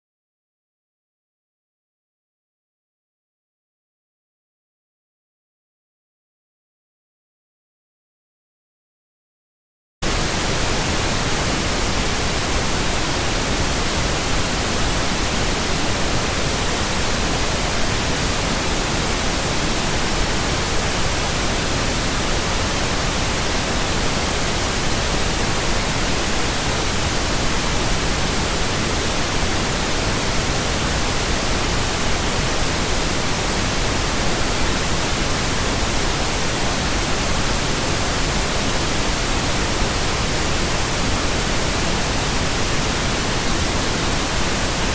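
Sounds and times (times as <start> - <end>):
steady pink noise hiss: 10.0 - 44.9.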